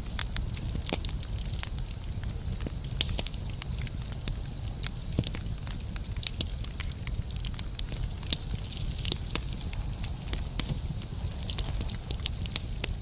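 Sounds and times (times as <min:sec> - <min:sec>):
logs crackling and popping: 0:00.0 - 0:13.0
low rush of flames: 0:00.0 - 0:13.0.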